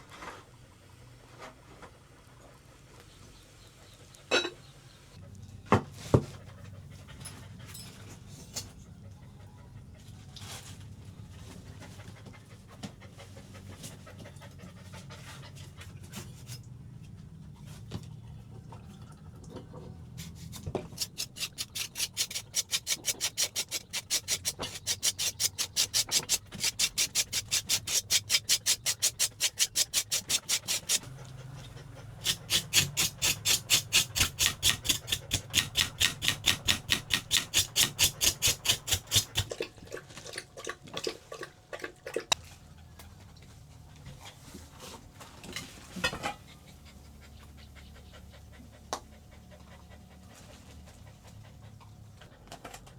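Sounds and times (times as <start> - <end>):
dog panting fast: 11.5 - 16.0, 20.2 - 39.6, 46.4 - 52.7.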